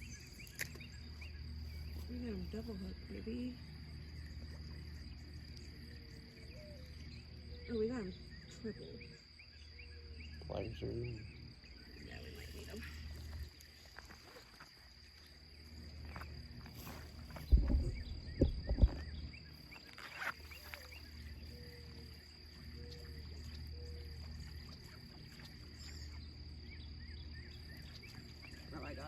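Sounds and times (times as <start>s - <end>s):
insects chirring: 0.0s - 29.0s
loud low thumps: 17.5s - 19.1s.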